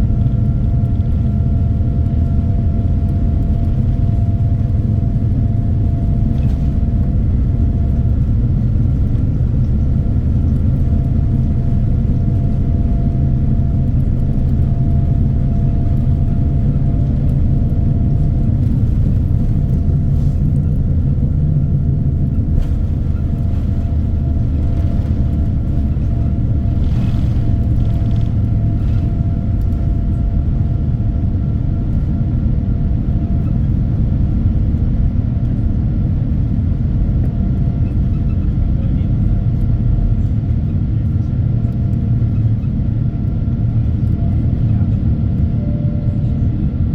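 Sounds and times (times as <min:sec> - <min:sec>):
faint hum tones: 0:00.0 - 0:32.3
airplane cabin rumble: 0:00.0 - 0:46.9.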